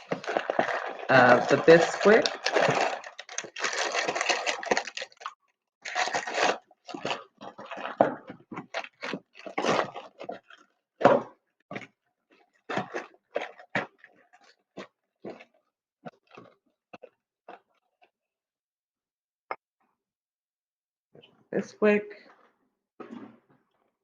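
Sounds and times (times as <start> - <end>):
cup scraping through dry mix: 0.0 - 10.6.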